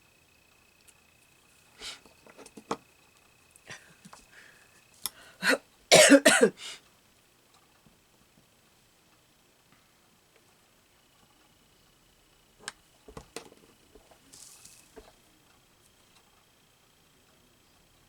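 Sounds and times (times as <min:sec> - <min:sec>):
person coughing: 0:05.4 - 0:06.8.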